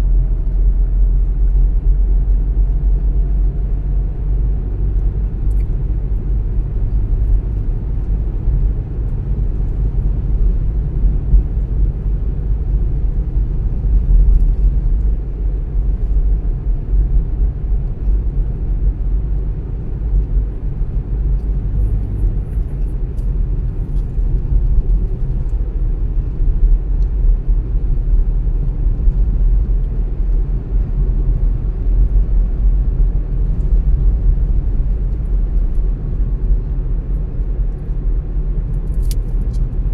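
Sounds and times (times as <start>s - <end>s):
car engine rumble: 0.0s - 39.9s
road noise: 0.0s - 39.9s.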